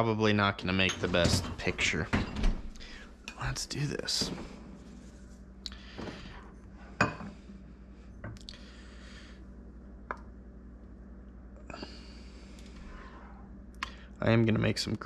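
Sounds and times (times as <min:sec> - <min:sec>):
steady low hum: 0:00.0 - 0:15.0
dishes clinking: 0:06.9 - 0:07.4.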